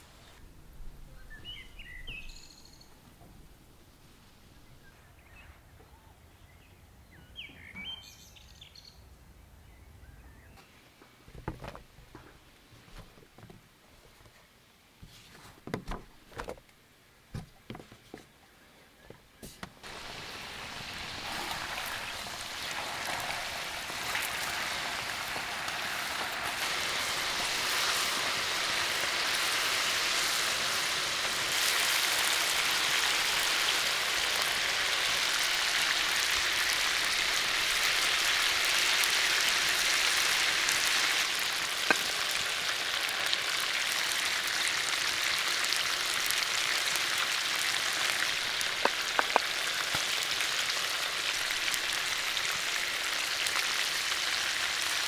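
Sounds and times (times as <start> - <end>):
food sizzling in hot oil: 19.8 - 55.0.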